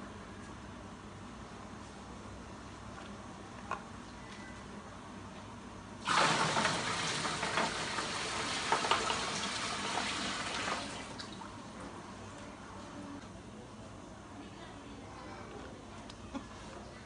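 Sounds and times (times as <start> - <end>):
water running from a tap: 6.0 - 11.4.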